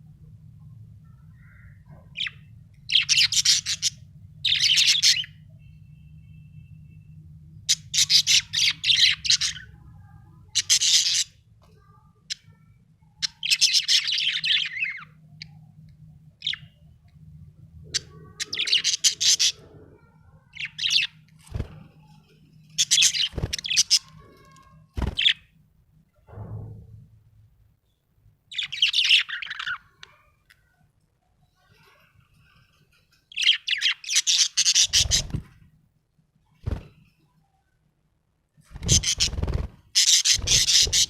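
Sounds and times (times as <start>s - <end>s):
budgerigar chirping: 38.8s - 39.4s, 40.0s - 41.0s.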